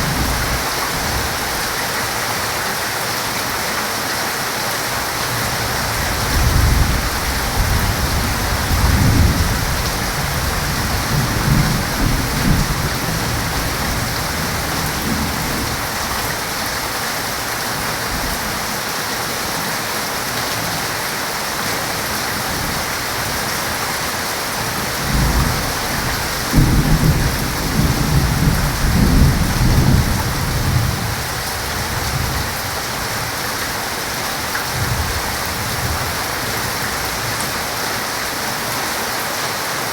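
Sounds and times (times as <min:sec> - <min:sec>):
heavy steady rain: 0:00.0 - 0:39.9
low rumbling thunder: 0:05.8 - 0:16.3, 0:24.9 - 0:33.2.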